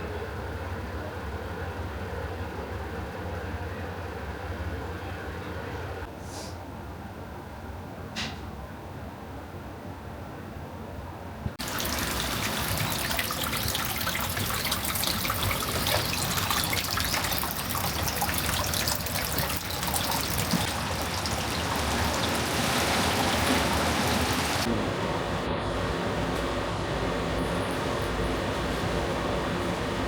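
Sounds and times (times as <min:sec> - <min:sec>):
water running and splashing: 0:11.6 - 0:24.7.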